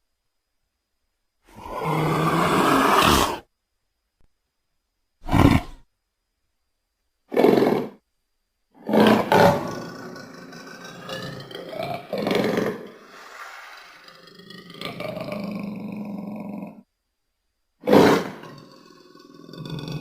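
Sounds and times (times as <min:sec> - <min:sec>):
leopard roaring: 0:01.5 - 0:03.4, 0:05.2 - 0:05.8, 0:08.8 - 0:16.8, 0:17.8 - 0:20.0.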